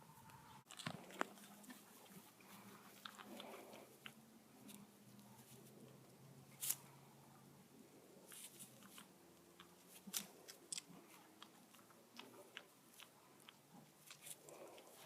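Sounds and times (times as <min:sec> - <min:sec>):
goat chewing and biting: 0:00.7 - 0:04.2.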